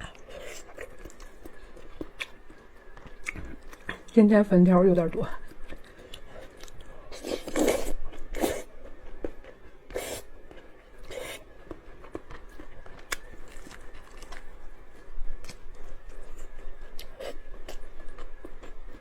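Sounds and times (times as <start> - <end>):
soft chewing clicks: 5.4 - 7.1.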